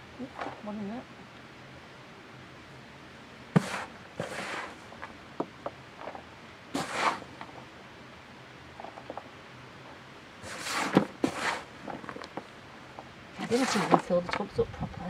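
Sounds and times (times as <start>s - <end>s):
hands scraping soil: 3.6s - 5.2s, 6.0s - 7.7s, 10.4s - 12.5s, 13.4s - 14.5s.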